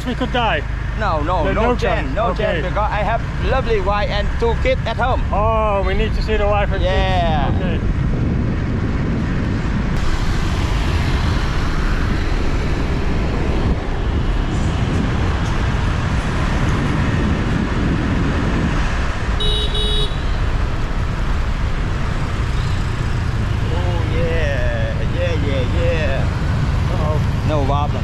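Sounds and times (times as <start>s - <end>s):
road noise: 0.0s - 28.0s
motorbike engine: 8.4s - 28.0s
vehicle horn beeping: 19.4s - 20.4s.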